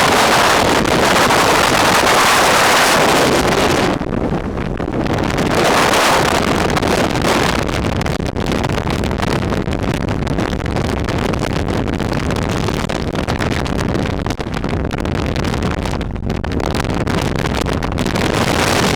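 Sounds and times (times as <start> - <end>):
wind buffeting the microphone: 0.0 - 18.9.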